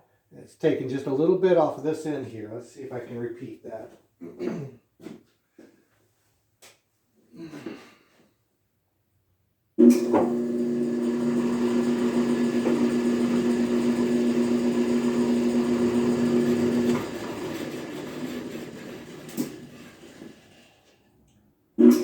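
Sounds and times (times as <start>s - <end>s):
planer motor humming: 9.8s - 20.7s.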